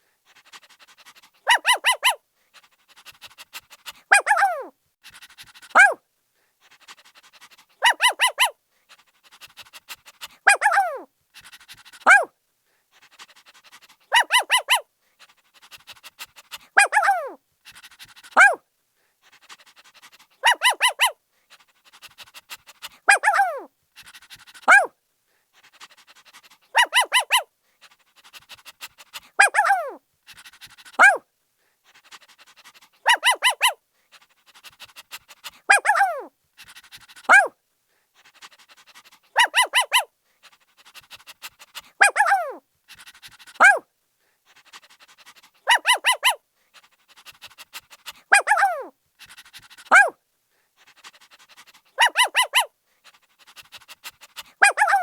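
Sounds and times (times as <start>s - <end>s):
puppy barking: 1.4s - 2.2s, 4.0s - 4.7s, 5.7s - 6.0s, 7.8s - 8.6s, 10.4s - 11.1s, 12.0s - 12.3s, 14.1s - 14.8s, 16.8s - 17.4s, 18.4s - 18.6s, 20.4s - 21.2s, 23.0s - 23.7s, 24.6s - 24.9s, 26.7s - 27.5s, 29.3s - 30.0s, 31.0s - 31.2s, 33.0s - 33.8s, 35.7s - 36.3s, 37.3s - 37.5s, 39.3s - 40.1s, 42.0s - 42.6s, 43.6s - 43.8s, 45.6s - 46.4s, 48.2s - 48.9s, 49.9s - 50.2s, 52.0s - 52.7s, 54.6s - 55.0s.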